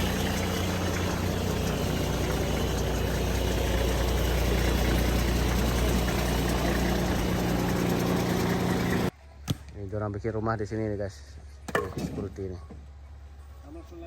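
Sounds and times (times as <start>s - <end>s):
diesel engine idling: 0.0s - 9.1s.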